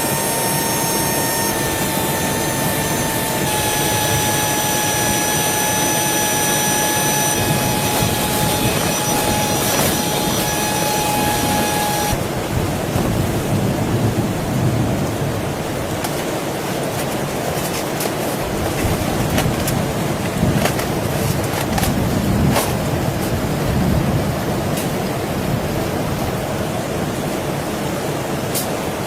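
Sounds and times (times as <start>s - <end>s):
high steady whistling tone: 0.0s - 12.2s
heavy rain falling: 0.0s - 29.0s.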